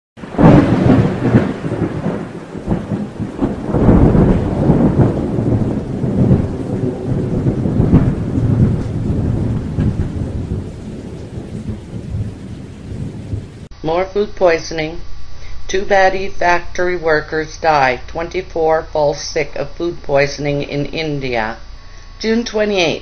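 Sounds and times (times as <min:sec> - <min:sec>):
steady rain: 0:00.2 - 0:13.7
thunder rumbling: 0:00.2 - 0:14.9.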